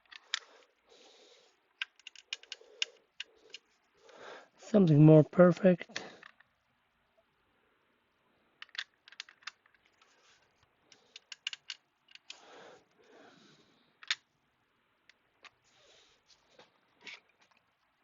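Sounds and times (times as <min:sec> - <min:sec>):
plastic parts clicking and tapping: 0:00.0 - 0:00.5, 0:01.8 - 0:03.7, 0:08.6 - 0:10.1, 0:10.9 - 0:12.4, 0:14.0 - 0:14.3.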